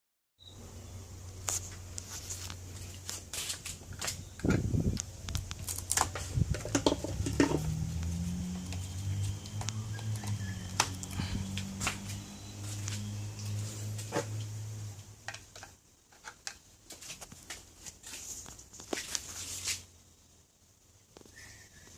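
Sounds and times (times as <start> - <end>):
motor electrical hum: 0.4 - 15.6
sharp clicks and knocks: 3.9 - 8.1
higher motor hum: 7.1 - 15.0.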